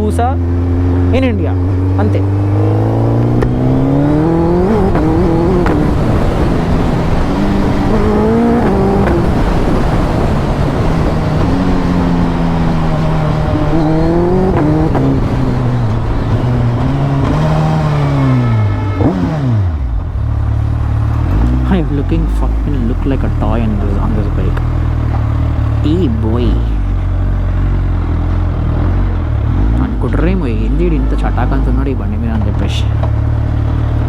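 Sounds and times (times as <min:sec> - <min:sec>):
motorcycle engine accelerating: 0:00.0 - 0:34.0
wind rush: 0:00.7 - 0:19.6.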